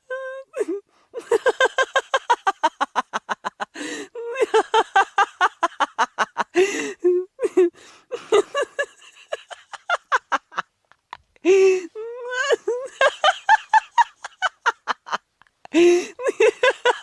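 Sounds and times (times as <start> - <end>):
person laughing hard: 1.2 - 10.7, 11.5 - 17.0
gasping in-breaths: 3.7 - 4.2, 6.5 - 7.1, 7.7 - 8.3, 11.4 - 12.0, 15.7 - 16.3.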